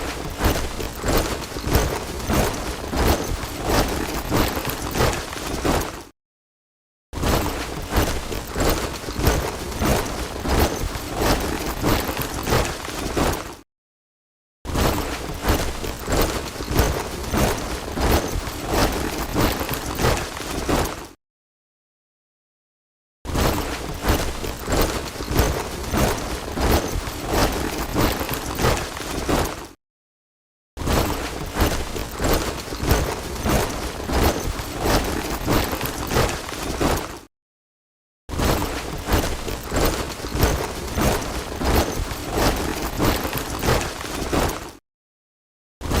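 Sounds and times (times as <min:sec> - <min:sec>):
boots marching in step: 0:00.0 - 0:06.1, 0:07.2 - 0:13.6, 0:14.8 - 0:21.1, 0:23.4 - 0:29.7, 0:30.9 - 0:37.3, 0:38.3 - 0:44.8.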